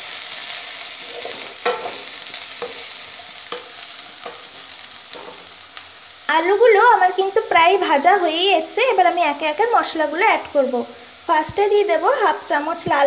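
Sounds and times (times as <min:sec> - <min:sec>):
potatoes sizzling in hot oil: 0:00.0 - 0:13.0
utensil scraping a pan: 0:01.0 - 0:05.6.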